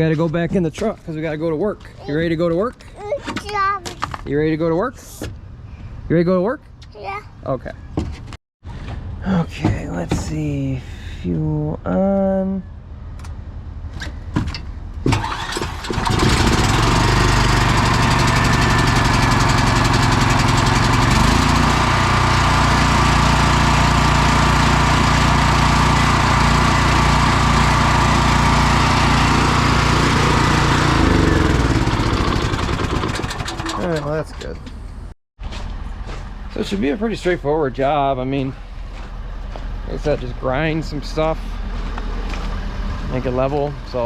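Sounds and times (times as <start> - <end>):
small generator engine running: 15.1 - 34.2
pull-start cord pulls: 30.6 - 34.0.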